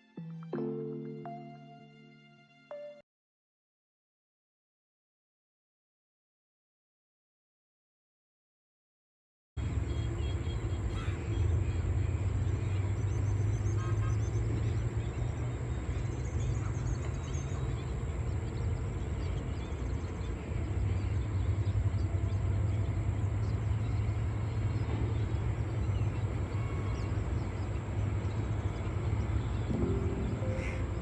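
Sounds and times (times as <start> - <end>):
low outdoor rumble: 9.6 - 31.0
faint high chirps: 29.7 - 31.0.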